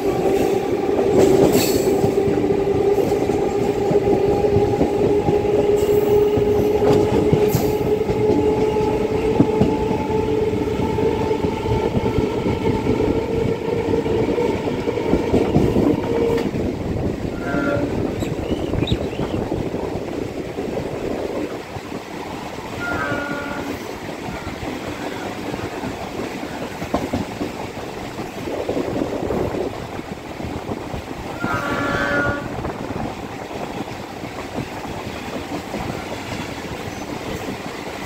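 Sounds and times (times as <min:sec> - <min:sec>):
train horn: 0:00.0 - 0:12.0, 0:17.3 - 0:18.3, 0:22.7 - 0:25.3, 0:31.3 - 0:32.8
train rumble and wheel clatter: 0:00.0 - 0:38.0.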